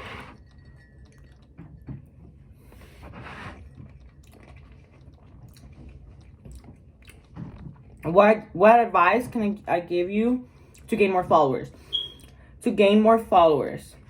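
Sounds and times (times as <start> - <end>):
person chewing food: 0.0 - 8.0.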